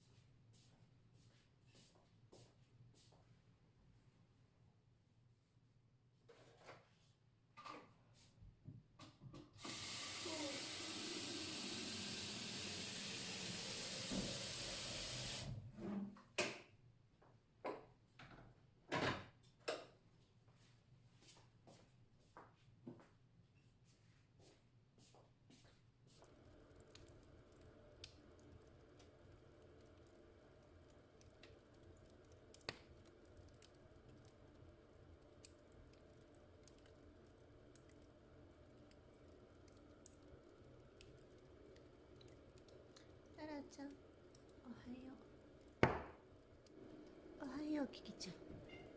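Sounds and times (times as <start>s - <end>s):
water running from tap: 9.6s - 15.6s, 26.2s - 48.9s
faint clicks: 26.2s - 44.6s.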